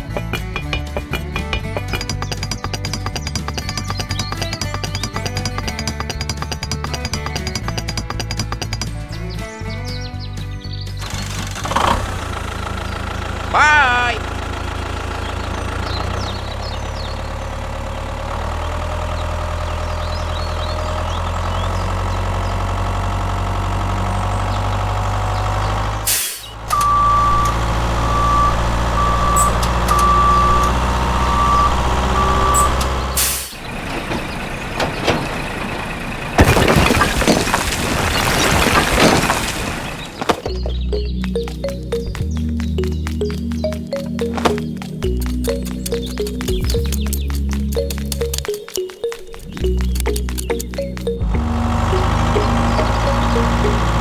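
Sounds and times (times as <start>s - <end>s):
truck engine running: 0.0s - 54.0s
reversing alarm beeping: 26.7s - 33.5s, 47.8s - 54.0s.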